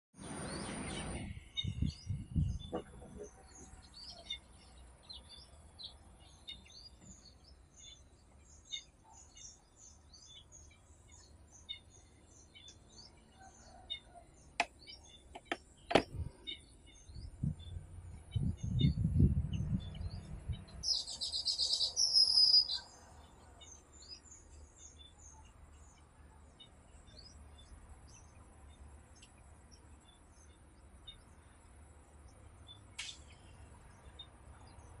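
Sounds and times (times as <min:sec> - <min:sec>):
birds chattering: 0:00.2 - 0:19.1
birds chirping: 0:00.2 - 0:35.0.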